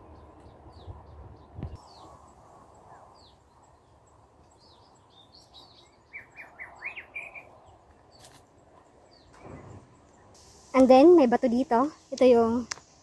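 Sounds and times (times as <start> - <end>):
wild birds chirping: 0.0 - 13.0
faint background hiss: 9.0 - 13.0.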